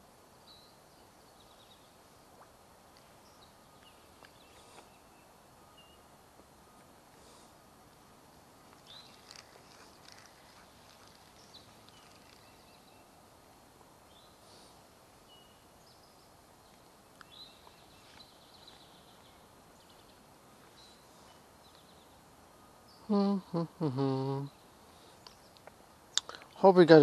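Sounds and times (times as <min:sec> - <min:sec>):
outdoor background hiss: 0:00.0 - 0:27.0
faint bird chirps: 0:00.4 - 0:06.1, 0:08.8 - 0:13.3.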